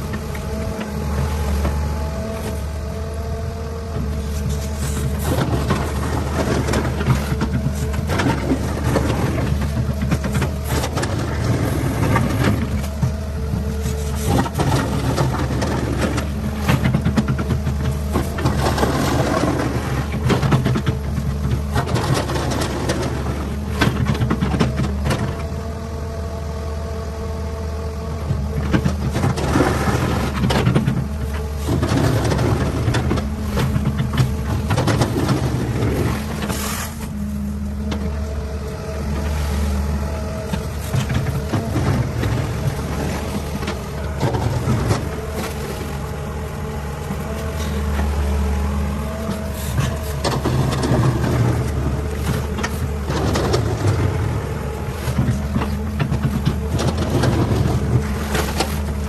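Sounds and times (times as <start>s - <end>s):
excavator diesel engine: 0.0s - 59.0s.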